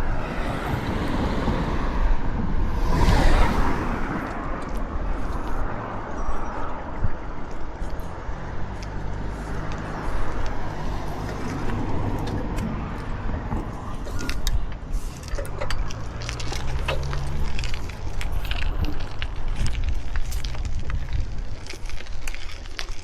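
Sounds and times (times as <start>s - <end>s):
wind buffeting microphone: 0.0s - 23.0s
bike rattling and clicks: 4.2s - 23.0s.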